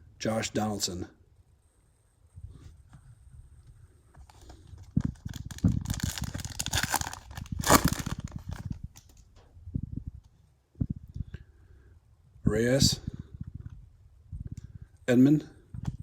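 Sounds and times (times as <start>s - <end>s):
foil wrapper tearing and crinkling: 5.0s - 9.2s.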